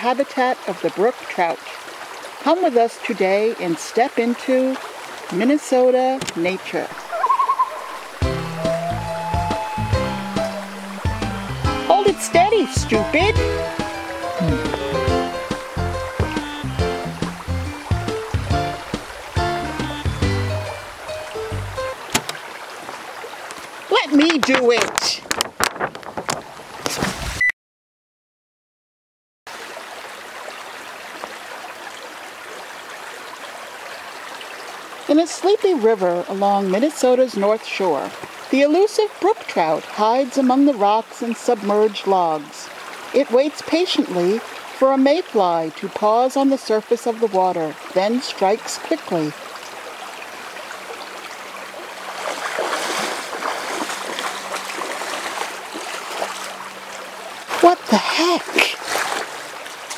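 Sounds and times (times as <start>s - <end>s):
river flowing over rocks: 0.0s - 12.6s, 47.2s - 59.9s
river water babbling: 0.0s - 26.9s, 29.5s - 59.9s.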